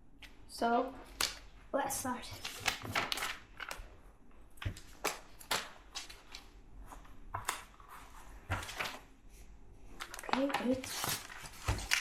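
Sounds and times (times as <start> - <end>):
packaging rustling: 10.0 - 12.0.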